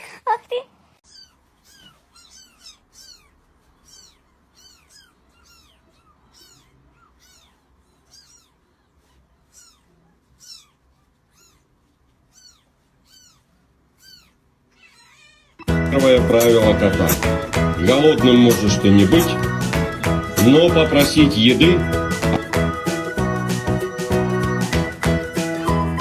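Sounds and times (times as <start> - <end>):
kitten mewing: 1.0 - 15.7.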